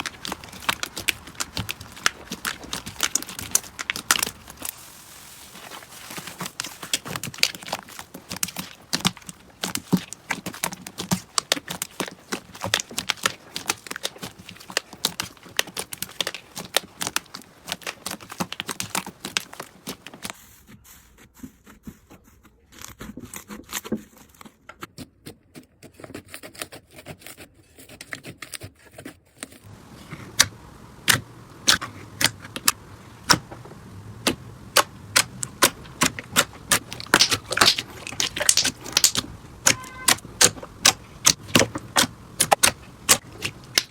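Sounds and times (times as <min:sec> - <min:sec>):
slime wet crackling and pops: 0:00.0 - 0:20.3, 0:30.1 - 0:43.9.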